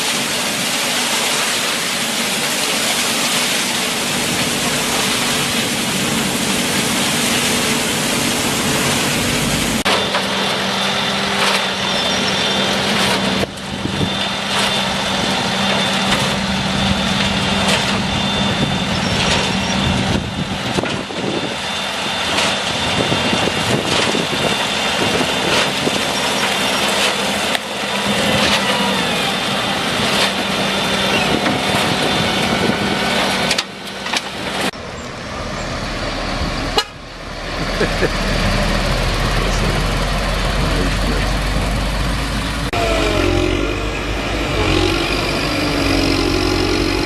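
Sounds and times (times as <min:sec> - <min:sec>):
screening machine motor hum: 0:41.7 - 0:47.0.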